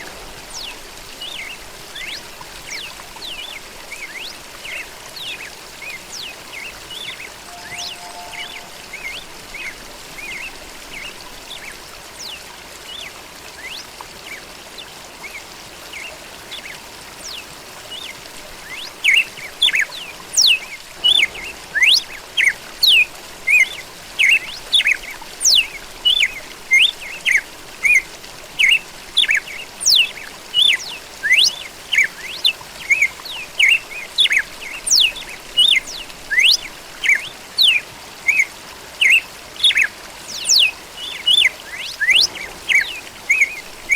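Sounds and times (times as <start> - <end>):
faint steady hiss: 0.0 - 43.9.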